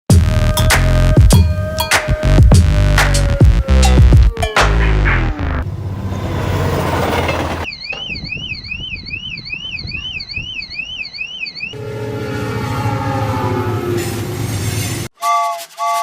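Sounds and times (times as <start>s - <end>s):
electronic warbling alarm: 5.4s - 13.8s.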